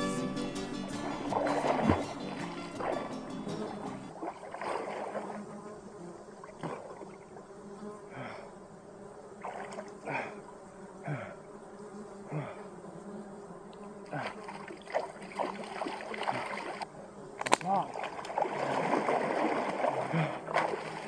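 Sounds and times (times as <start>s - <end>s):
flies buzzing: 0.0s - 21.0s.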